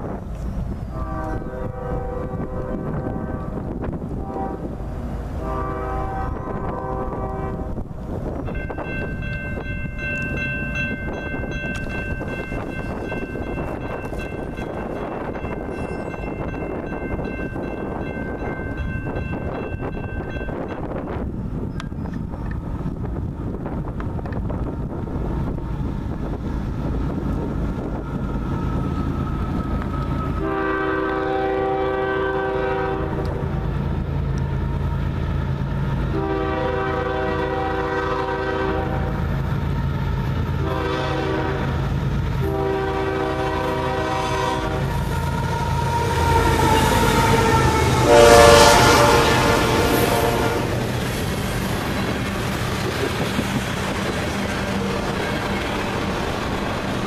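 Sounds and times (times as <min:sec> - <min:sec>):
diesel locomotive engine: 0:00.0 - 0:57.0
train cars rumbling on rails: 0:00.0 - 0:57.0
locomotive horn blasts: 0:00.9 - 0:04.8, 0:05.4 - 0:07.9, 0:30.4 - 0:33.6, 0:36.1 - 0:39.2, 0:40.6 - 0:50.9, 0:54.6 - 0:55.6.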